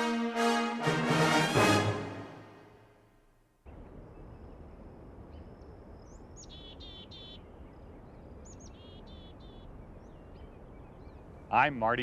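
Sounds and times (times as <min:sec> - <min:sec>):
low outdoor rumble: 0:03.0 - 0:12.0
songbird singing: 0:03.6 - 0:12.0
faint bird chirps: 0:03.7 - 0:11.9.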